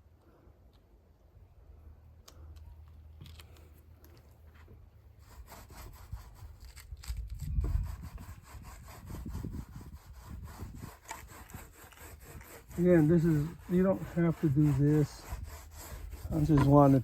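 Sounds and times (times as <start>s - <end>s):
rubbing on wooden drum shell: 7.4s - 17.0s.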